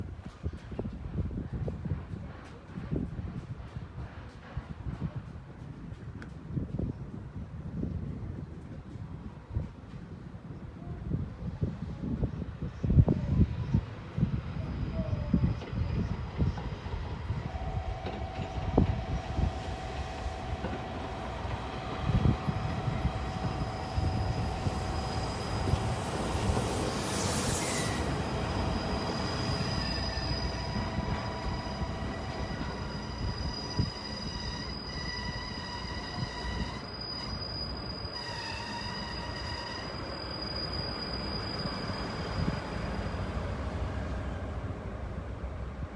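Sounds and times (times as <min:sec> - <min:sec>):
steam train rolling slowly: 0:00.0 - 0:45.9
high-pitched brake squealing: 0:14.6 - 0:43.4
steam hiss: 0:18.5 - 0:34.2.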